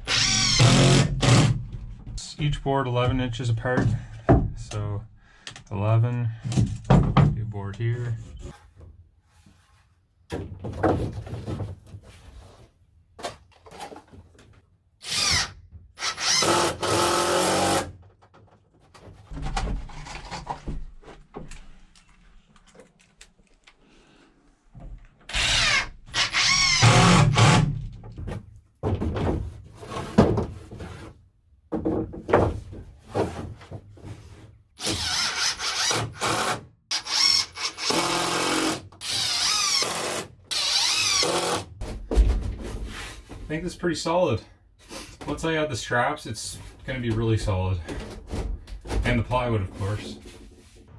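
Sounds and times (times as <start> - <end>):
power drill driving screws: 0.0 - 1.6, 15.0 - 17.9, 25.3 - 27.7, 34.8 - 41.7.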